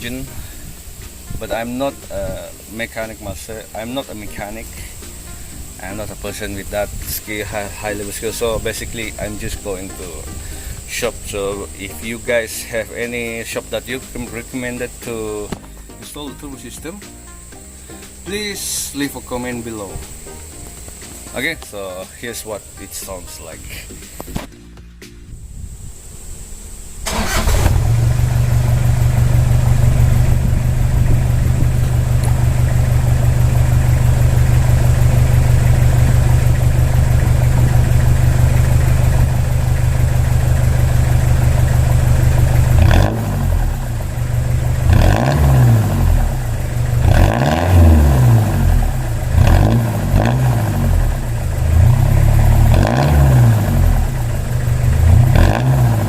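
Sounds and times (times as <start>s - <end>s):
diesel engine idling and revving: 0.0s - 15.7s, 27.0s - 56.0s.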